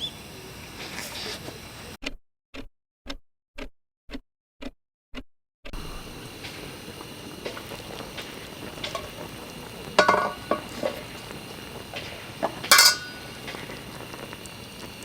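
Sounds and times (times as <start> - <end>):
steady background hiss: 0.0 - 2.0, 5.8 - 15.0
metal cookware clattering: 7.3 - 14.3.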